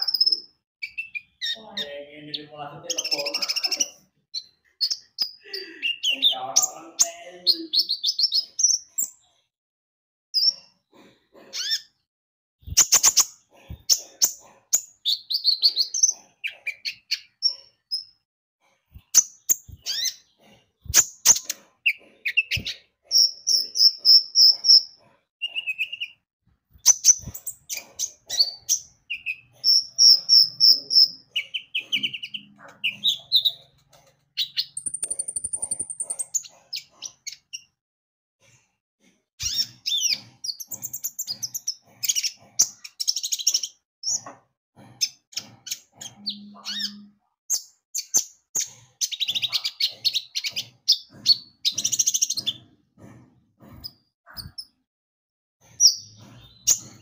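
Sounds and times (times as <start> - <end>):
sunbird singing chirps and trills: 34.4 - 36.6, 45.7 - 48.3.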